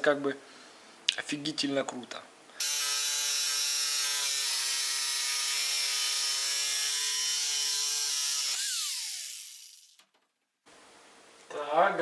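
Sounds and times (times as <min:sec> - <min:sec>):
power tool cutting wood: 0:02.6 - 0:10.0.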